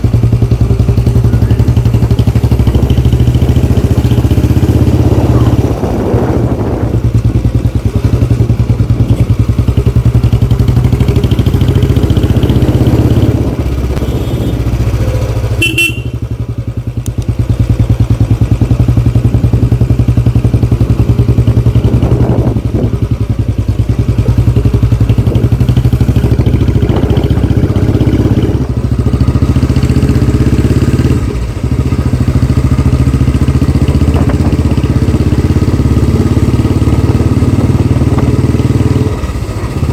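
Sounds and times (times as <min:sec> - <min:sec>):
motorcycle engine exhaust thumping: 0:00.0 - 0:39.9.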